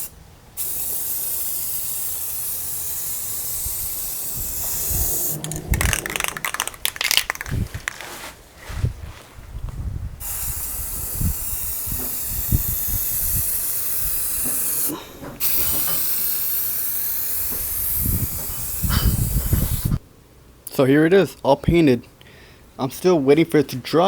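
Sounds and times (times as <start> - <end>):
spray paint hissing: 0.0 - 8.2, 10.2 - 20.0.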